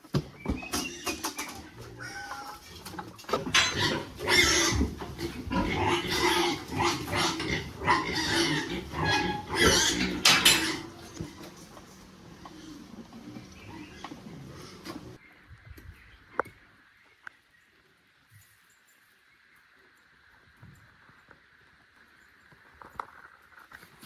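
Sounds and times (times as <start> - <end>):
pigs grunting and squealing: 0.5 - 15.2.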